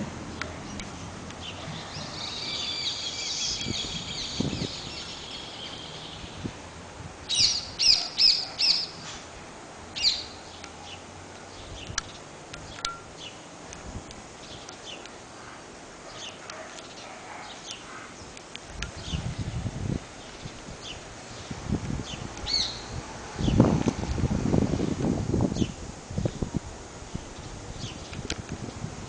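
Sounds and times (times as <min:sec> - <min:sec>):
birds chirping: 0:00.3 - 0:06.6, 0:07.3 - 0:09.2, 0:10.0 - 0:13.5, 0:14.4 - 0:23.7
loud sharp bird calls: 0:01.4 - 0:06.4, 0:07.3 - 0:09.2, 0:10.0 - 0:11.0, 0:22.1 - 0:23.6.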